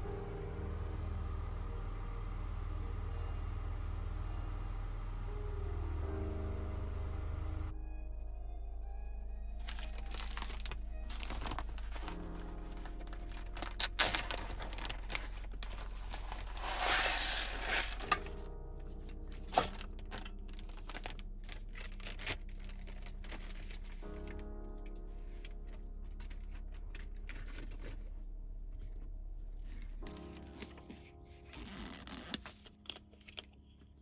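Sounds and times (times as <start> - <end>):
soft background music: 0.0 - 34.0
packaging crinkling and tearing: 9.6 - 18.4, 19.0 - 24.5, 29.6 - 33.9
small clicks and handling knocks: 32.3 - 34.0.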